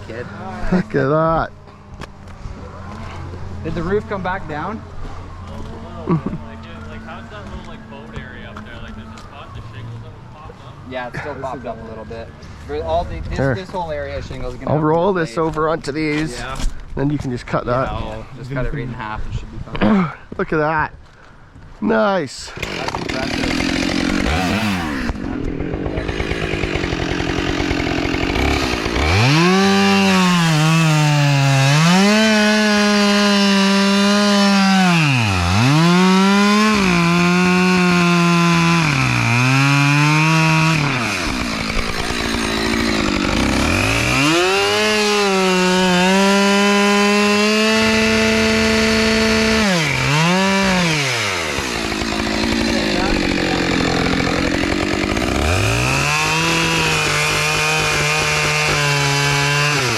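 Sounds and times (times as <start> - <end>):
chainsaw cutting wood: 22.5 - 59.9.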